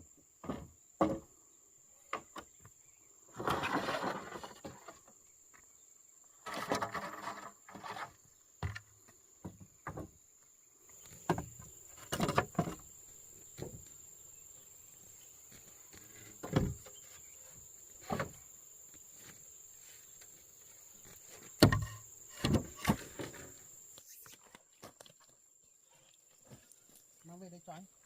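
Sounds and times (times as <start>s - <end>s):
high insect drone: 7.5s - 24.5s
knocks and thuds of handwork: 21.6s - 23.3s.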